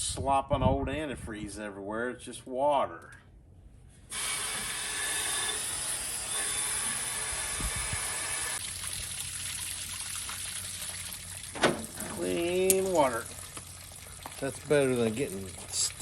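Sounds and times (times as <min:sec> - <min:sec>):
water rushing: 0:08.6 - 0:16.0.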